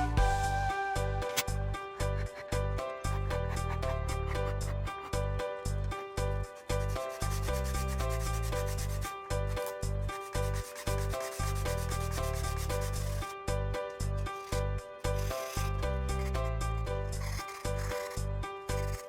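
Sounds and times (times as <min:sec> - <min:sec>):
background music with bass line: 0:00.0 - 0:09.0
hand sanding rasping rub: 0:06.5 - 0:13.3, 0:15.1 - 0:16.4, 0:17.1 - 0:19.0.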